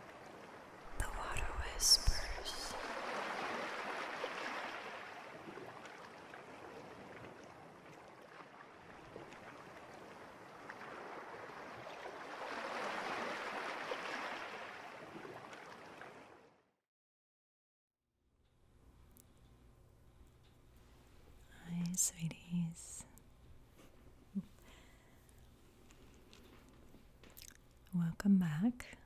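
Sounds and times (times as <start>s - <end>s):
rushing water waves: 0.0s - 16.5s.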